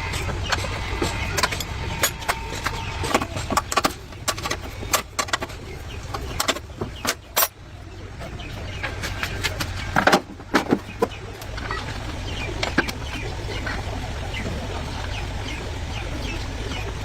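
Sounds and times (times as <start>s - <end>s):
low steady hum: 0.0s - 17.0s
sharp clicks and knocks: 0.1s - 7.6s, 8.7s - 13.2s.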